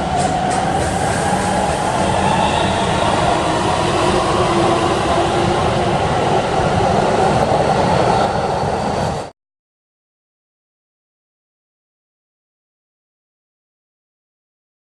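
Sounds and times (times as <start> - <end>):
electric train rumbling: 0.0 - 9.3.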